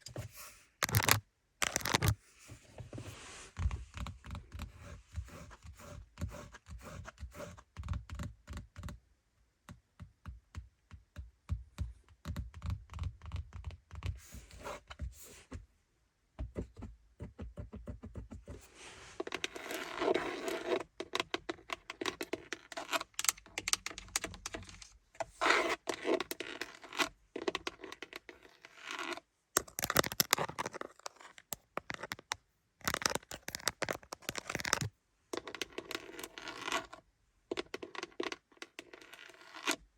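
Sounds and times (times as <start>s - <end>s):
scratching with sharp taps: 29.6s - 36.9s.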